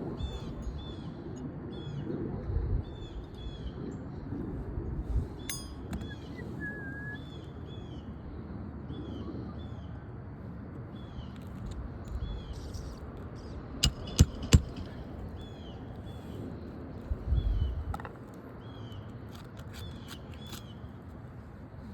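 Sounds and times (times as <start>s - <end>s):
low outdoor rumble: 0.0s - 21.9s
bird chirping: 12.1s - 16.2s
sharp knocks: 13.8s - 15.0s.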